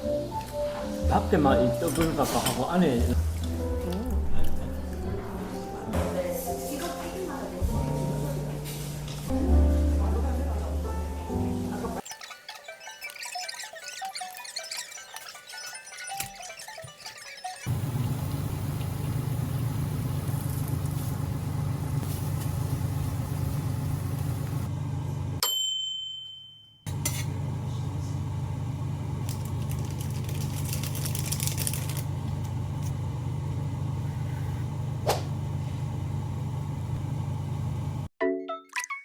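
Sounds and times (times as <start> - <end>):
low mechanical hum: 17.7 - 25.4, 26.9 - 38.1.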